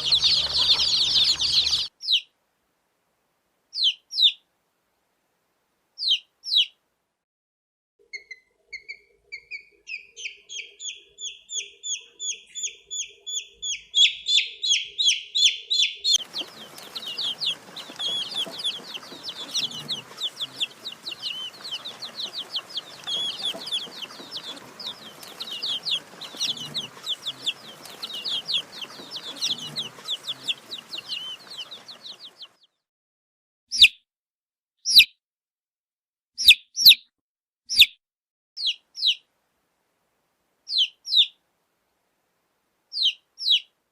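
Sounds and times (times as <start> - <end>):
chicks peeping: 0.0 - 2.3, 3.8 - 4.4, 6.0 - 6.7, 8.1 - 32.7, 38.6 - 39.2, 40.7 - 41.3, 43.0 - 43.7.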